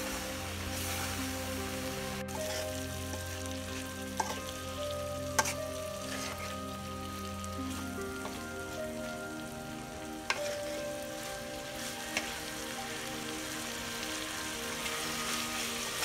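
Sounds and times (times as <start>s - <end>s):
fish sizzling in gravy: 0.0s - 16.0s
soft melody of held notes: 0.0s - 16.0s
metal spatula stirring: 2.3s - 4.6s, 5.4s - 6.7s, 10.2s - 10.9s.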